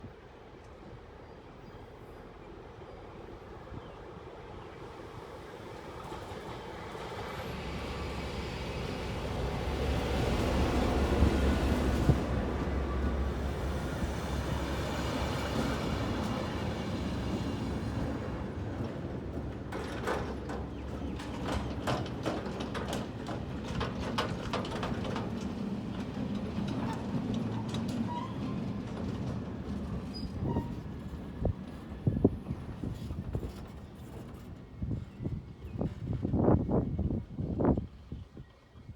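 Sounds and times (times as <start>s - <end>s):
locomotive low rumble: 7.6s - 38.5s
train wheels clacking over rail joints: 14.5s - 34.6s.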